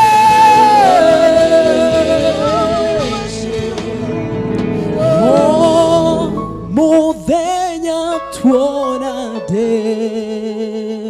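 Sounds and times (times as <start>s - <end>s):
person singing long note: 0.0s - 4.1s, 5.0s - 6.4s
instrumental backing: 0.0s - 10.8s.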